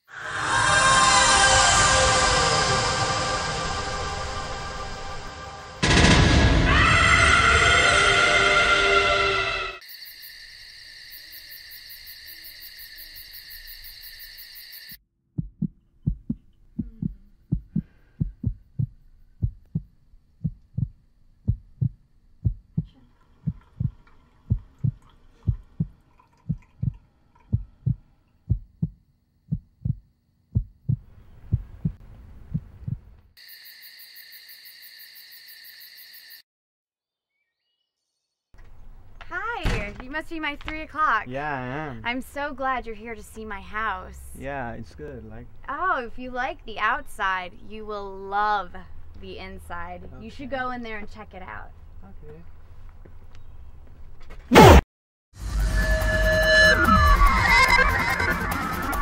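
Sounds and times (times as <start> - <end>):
high chirring like crickets: 0.1 - 5.8, 6.5 - 15.0, 33.4 - 36.4
heartbeat thuds: 15.4 - 33.2.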